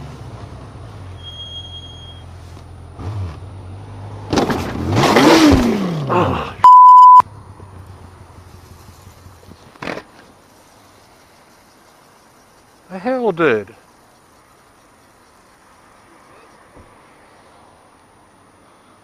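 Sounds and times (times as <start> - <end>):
censor bleep: 6.6 - 7.2.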